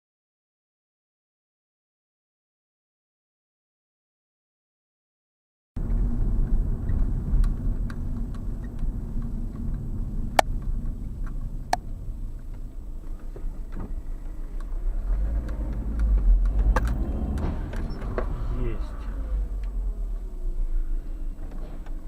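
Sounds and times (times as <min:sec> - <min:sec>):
road noise: 0:05.8 - 0:22.0
vehicle engine rumble: 0:05.8 - 0:22.0.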